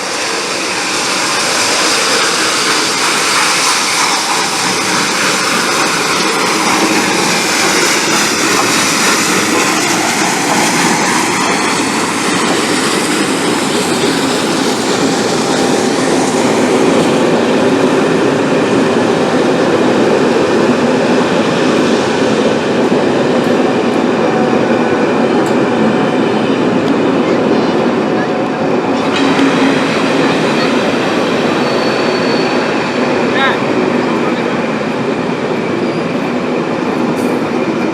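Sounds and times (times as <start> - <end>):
train wheels rushing on rails: 0.0 - 37.9.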